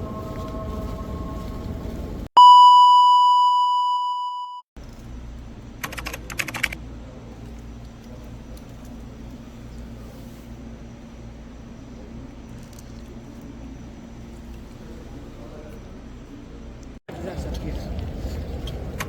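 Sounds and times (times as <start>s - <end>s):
low steady hum: 0.0s - 2.3s
electronic beep tone: 2.4s - 4.6s
sharp clicks: 5.8s - 6.8s.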